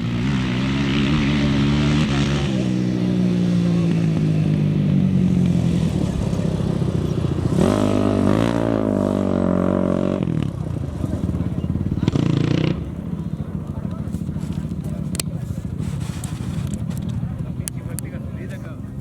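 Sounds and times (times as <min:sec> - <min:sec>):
racing engine revving: 0:00.0 - 0:13.9.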